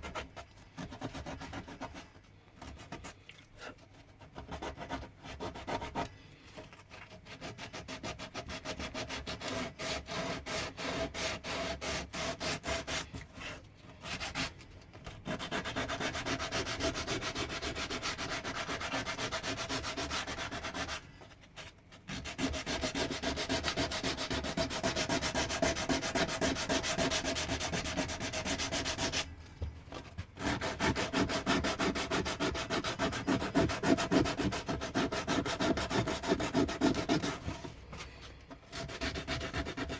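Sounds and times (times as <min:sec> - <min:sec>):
wood being sanded by hand: 0:00.0 - 0:02.0, 0:04.4 - 0:06.0, 0:07.2 - 0:14.5, 0:15.2 - 0:21.0, 0:22.1 - 0:29.3, 0:30.4 - 0:37.7, 0:38.7 - 0:39.9.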